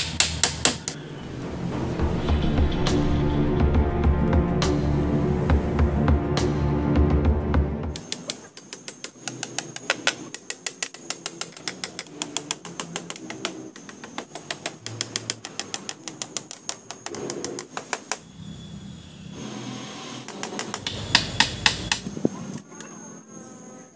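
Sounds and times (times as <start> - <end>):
hammer tapping small nails: 0.0 - 1.0, 8.0 - 18.2, 20.3 - 22.1
background music: 0.0 - 8.6.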